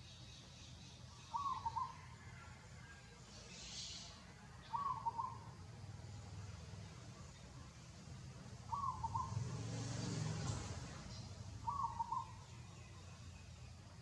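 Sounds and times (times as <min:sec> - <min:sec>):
bird calling: 0:00.8 - 0:02.4, 0:03.5 - 0:05.6, 0:08.7 - 0:09.5, 0:11.1 - 0:13.2.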